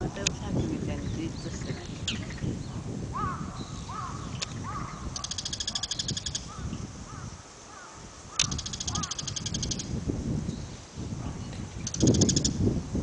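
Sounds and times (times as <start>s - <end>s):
birds calling: 0.0s - 9.9s, 11.4s - 12.6s
buzzy rattling bird trill: 3.2s - 10.0s, 11.7s - 12.6s.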